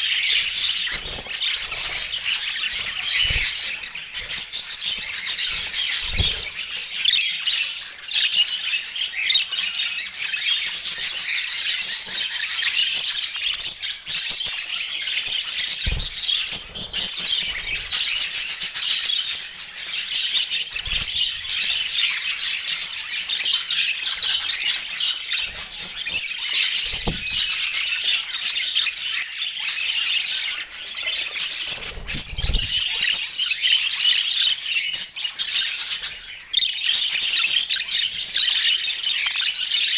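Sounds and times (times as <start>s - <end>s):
budgerigars chattering and squawking: 0.0s - 39.9s
dull thumps: 26.9s - 27.6s.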